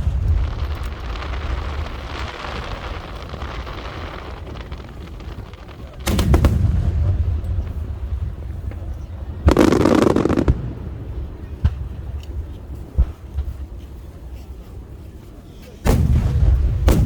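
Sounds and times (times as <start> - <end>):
deep rumble: 0.0 - 4.8
fireworks booming: 0.0 - 12.2, 15.8 - 17.0
fireworks crackling hiss: 0.0 - 17.0.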